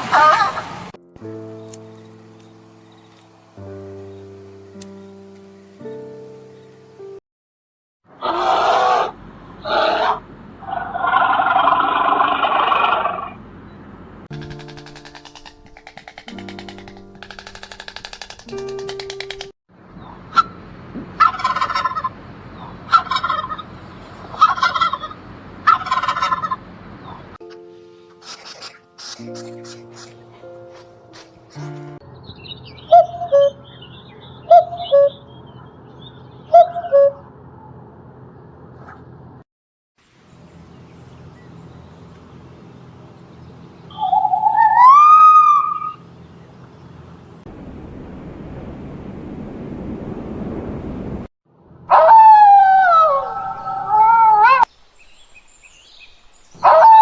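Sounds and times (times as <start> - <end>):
animal call rising in pitch: 0.0 - 0.8, 8.2 - 13.4, 43.9 - 46.1, 51.9 - 54.7, 56.6 - 57.0
fowl warbling calls: 0.0 - 0.9, 21.2 - 23.7, 24.3 - 26.6, 43.9 - 46.1
low steady hum: 46.1 - 51.8.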